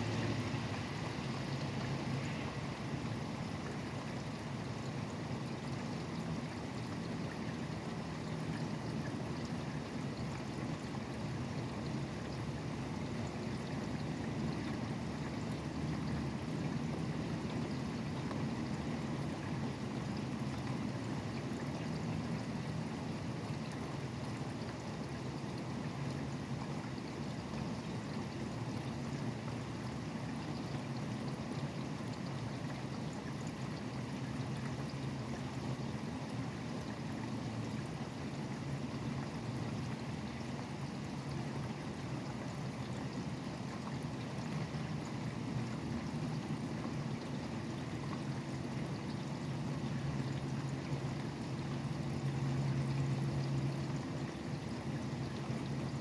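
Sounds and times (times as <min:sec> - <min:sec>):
highway traffic hum: 0:00.0 - 0:03.7.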